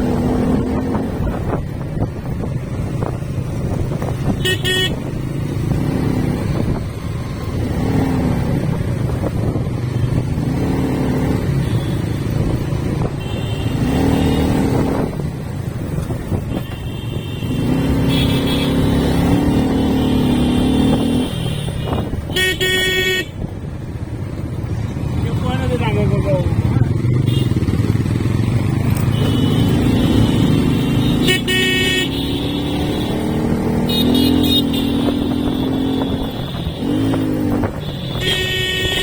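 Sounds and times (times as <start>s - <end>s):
motorcycle engines revving: 0.0s - 39.0s
vehicle horn toot: 4.4s - 5.1s, 16.5s - 18.9s, 21.1s - 23.4s, 27.3s - 27.6s, 29.0s - 33.2s, 33.9s - 37.1s, 37.8s - 39.0s.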